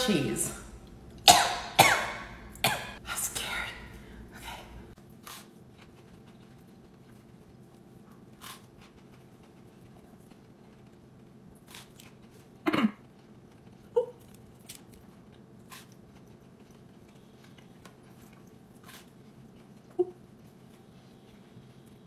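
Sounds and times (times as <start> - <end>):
faint steady hum: 0.0 - 22.0
sandwich being chewed: 5.0 - 22.0.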